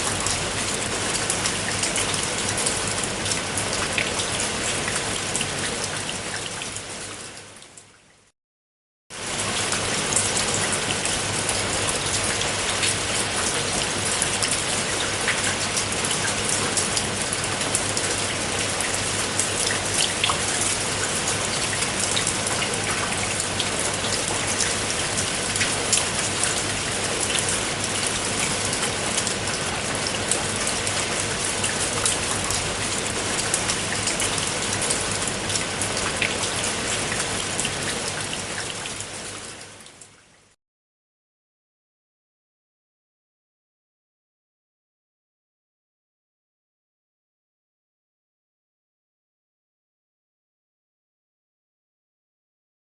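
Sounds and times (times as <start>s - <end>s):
rain falling on roof tiles: 0.0s - 8.3s, 9.1s - 40.6s.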